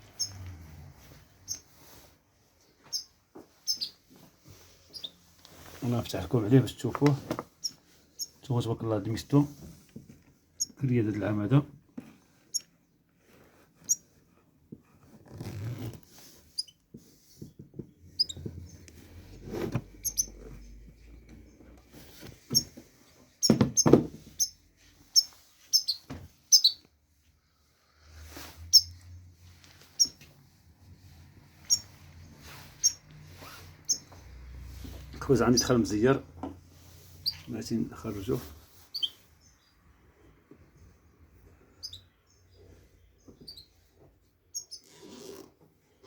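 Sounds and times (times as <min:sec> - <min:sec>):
rustling: 0:00.0 - 0:08.4, 0:27.3 - 0:35.9
bird chirping: 0:00.1 - 0:00.4, 0:01.4 - 0:01.8, 0:02.9 - 0:04.0, 0:04.9 - 0:05.2, 0:18.1 - 0:18.8, 0:20.0 - 0:21.7, 0:23.4 - 0:26.8, 0:28.7 - 0:29.0, 0:30.0 - 0:30.2, 0:31.6 - 0:34.2, 0:37.2 - 0:37.7, 0:38.9 - 0:39.9, 0:41.6 - 0:43.9, 0:44.5 - 0:44.9.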